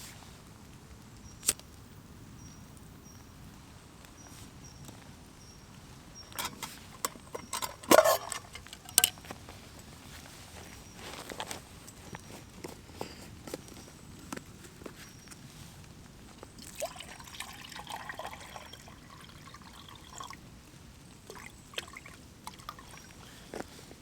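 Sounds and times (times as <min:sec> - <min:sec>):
quiet outdoor background: 0:00.0 - 0:24.0
rustling and clicking handling: 0:06.3 - 0:15.5.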